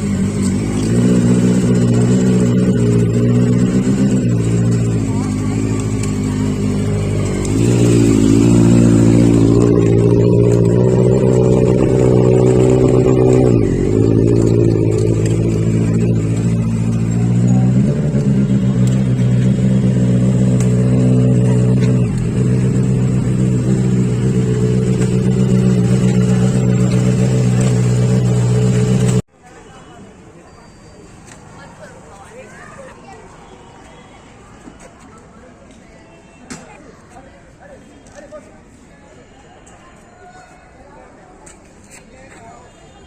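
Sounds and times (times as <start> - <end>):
motorcycle engine revving: 0.0 - 29.3.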